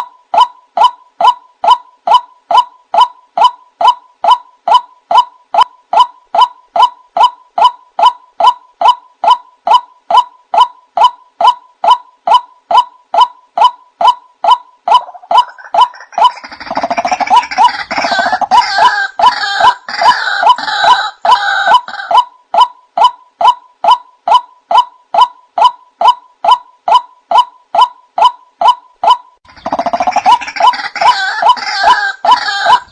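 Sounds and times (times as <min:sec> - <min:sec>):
harsh chattering calls: 0:06.4 - 0:32.9
waterhen calling: 0:14.9 - 0:22.2, 0:29.5 - 0:32.9.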